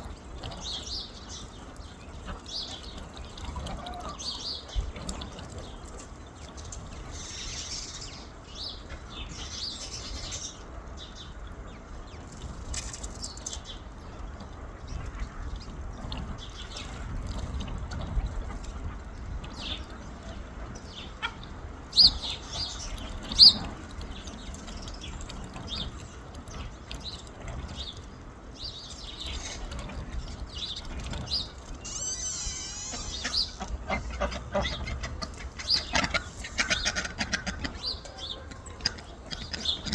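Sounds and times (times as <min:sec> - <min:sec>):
birds chirping and calling: 0:00.0 - 0:39.9
sharp bird calls: 0:30.6 - 0:39.9
warbling bird call: 0:31.4 - 0:39.9.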